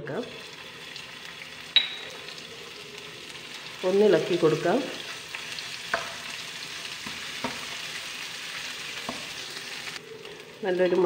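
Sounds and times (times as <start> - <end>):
paste sizzling in hot oil: 0.2 - 10.6
spatula tapping pan: 5.3 - 6.2.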